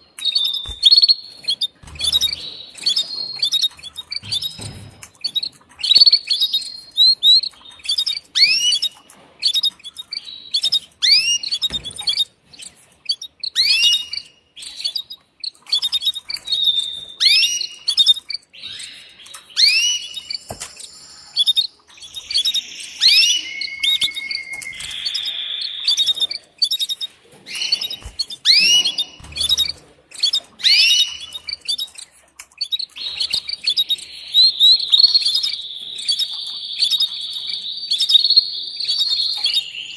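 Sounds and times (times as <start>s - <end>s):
canary trills: 0.0s - 39.9s
canary chirps sweeping down: 13.1s - 31.9s.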